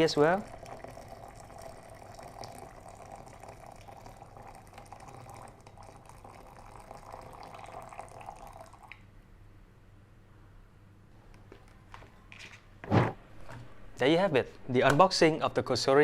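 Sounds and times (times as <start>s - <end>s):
water pouring from kettle: 0.0s - 9.0s.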